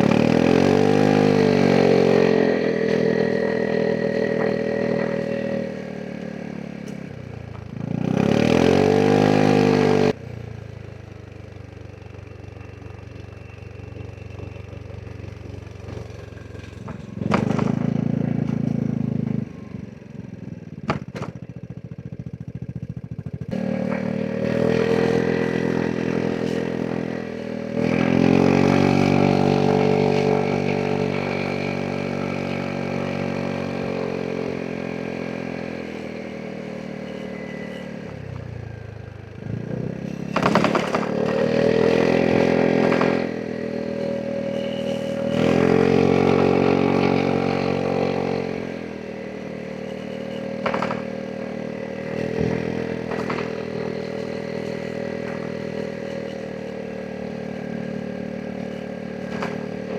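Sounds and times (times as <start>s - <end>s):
scooter engine revving: 0.0s - 59.9s.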